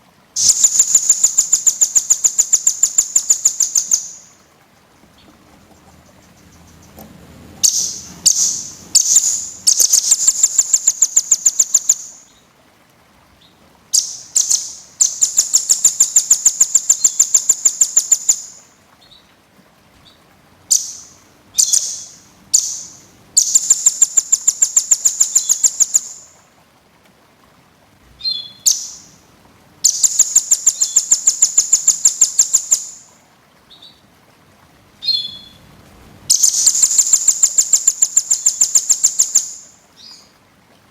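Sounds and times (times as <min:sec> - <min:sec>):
songbird trilling: 0:00.4 - 0:04.4, 0:05.0 - 0:12.4, 0:13.4 - 0:19.2, 0:20.0 - 0:26.4, 0:28.2 - 0:29.2, 0:29.8 - 0:33.1, 0:35.0 - 0:35.6, 0:36.3 - 0:40.3.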